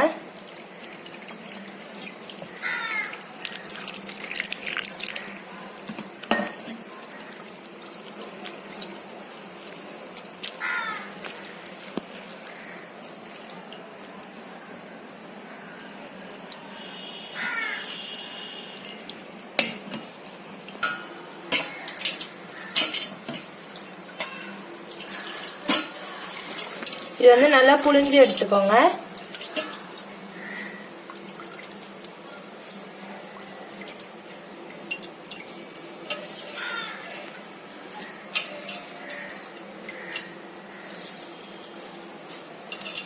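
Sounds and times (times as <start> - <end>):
water splashing: 0.2 - 5.6, 22.6 - 34.1
kitchen vessels clinking: 5.9 - 6.8, 20.8 - 30.0, 34.8 - 43.0.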